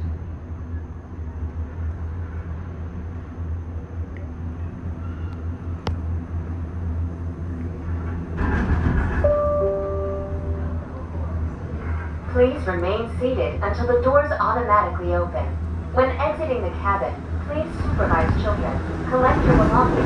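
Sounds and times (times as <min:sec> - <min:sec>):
gondola cabin rumbling on cable: 0:01.2 - 0:20.0
rattling rush: 0:15.9 - 0:20.0.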